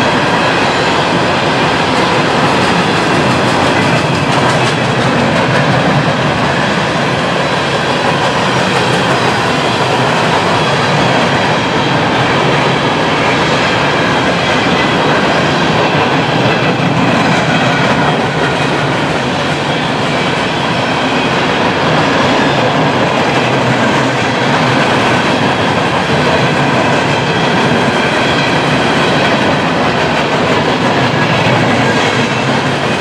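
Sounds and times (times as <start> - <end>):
steel train wheels on rails: 0.0 - 33.0.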